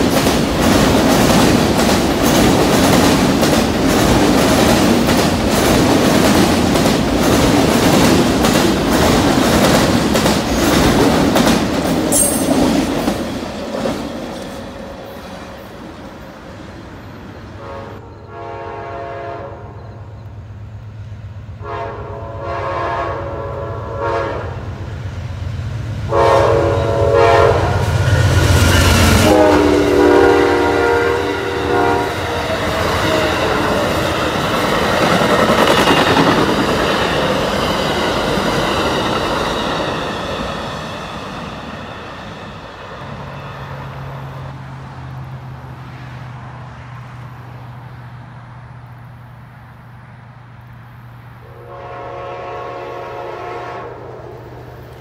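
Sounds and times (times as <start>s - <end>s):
train cars clattering on rails: 0.0s - 17.2s, 31.6s - 43.7s
diesel locomotive engine rumble: 0.0s - 55.0s
train cars rumbling over bridge: 0.0s - 55.0s
train horn blasts: 17.6s - 20.2s, 21.6s - 24.8s, 26.1s - 34.1s, 51.4s - 55.0s.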